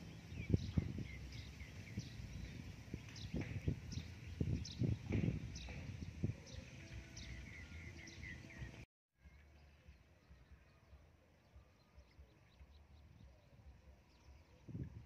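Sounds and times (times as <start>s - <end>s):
bird chirping: 0.0s - 14.8s
low thuds: 2.2s - 6.4s.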